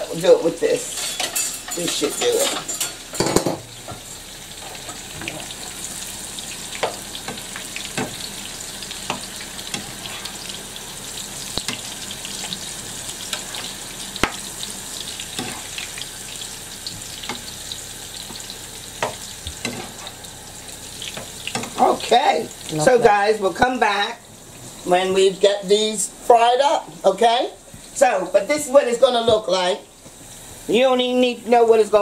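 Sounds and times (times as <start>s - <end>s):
fritters sizzling in oil: 0.0s - 32.0s
spatula scraping pans: 0.8s - 4.0s, 19.0s - 20.2s.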